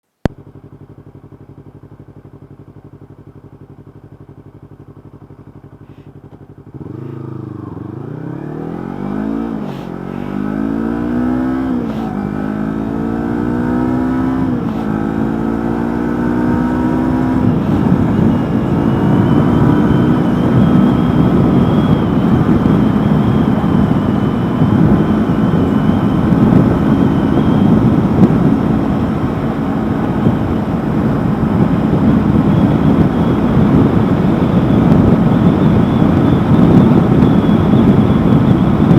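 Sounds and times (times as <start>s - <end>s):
motorcycle engine revving: 0.2s - 38.9s
wind noise: 6.8s - 38.9s.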